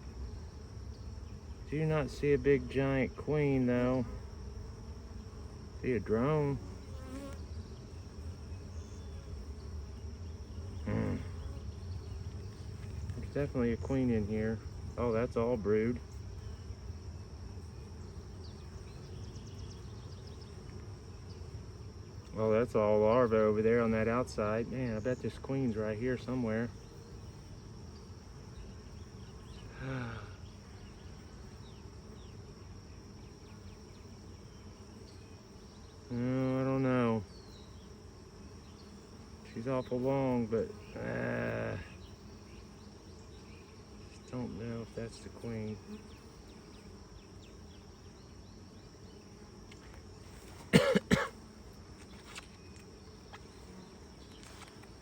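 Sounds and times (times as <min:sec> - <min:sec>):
honey bees buzzing: 0:00.0 - 0:55.0
person murmuring: 0:10.8 - 0:11.4, 0:29.7 - 0:30.4, 0:36.1 - 0:36.8, 0:40.9 - 0:42.0
person coughing: 0:50.7 - 0:51.4.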